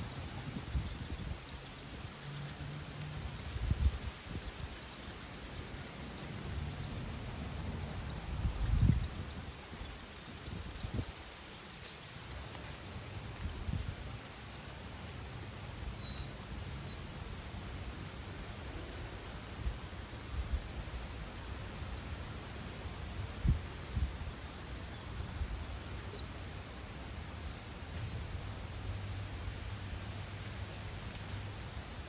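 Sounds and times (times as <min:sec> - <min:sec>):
wind buffeting microphone: 0:00.0 - 0:14.3
outdoor hiss: 0:00.0 - 0:32.0
bird chirping: 0:14.5 - 0:17.4.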